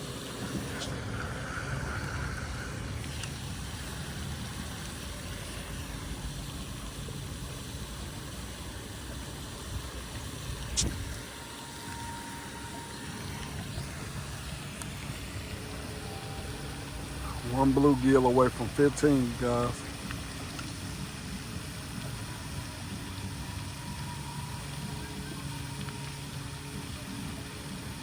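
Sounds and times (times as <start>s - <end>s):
low engine rumble: 0.0s - 28.0s
sharp click: 10.6s - 11.0s.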